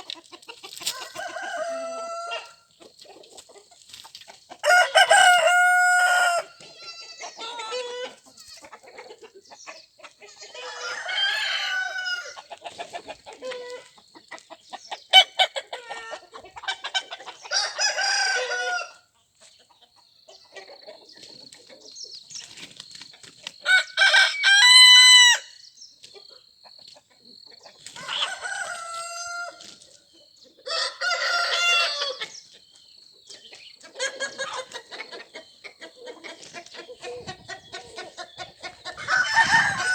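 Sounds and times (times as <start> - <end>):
hens clucking: 0.0 - 24.3, 26.0 - 39.9
roosters crowing: 0.8 - 2.7, 4.6 - 8.6, 10.3 - 12.8, 15.2 - 19.1, 23.6 - 25.6, 27.9 - 29.9, 30.6 - 32.4, 37.0 - 39.9.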